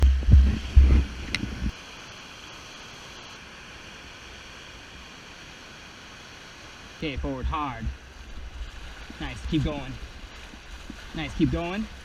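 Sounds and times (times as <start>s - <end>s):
wind buffeting microphone: 0.0s - 1.8s
river whitewater rushing: 1.2s - 12.0s.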